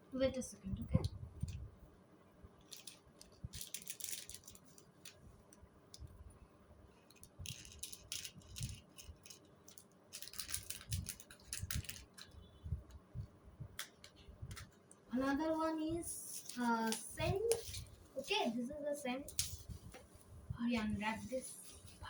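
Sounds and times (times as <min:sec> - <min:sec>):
packaging crinkling: 0:02.6 - 0:05.2, 0:07.1 - 0:12.4.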